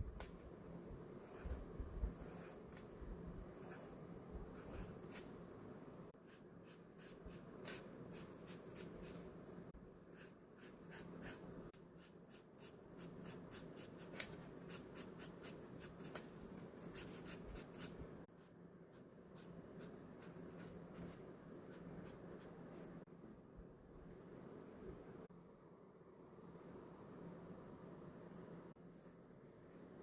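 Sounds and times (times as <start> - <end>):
pen scratching on paper: 1.2 - 2.9, 16.9 - 23.0.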